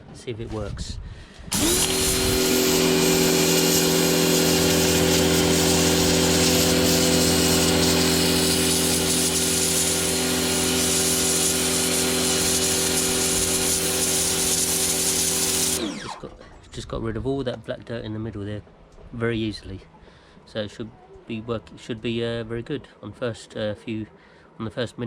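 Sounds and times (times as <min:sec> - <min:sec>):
water jet hissing: 0:01.5 - 0:16.3
pressure washer motor humming: 0:01.5 - 0:16.4.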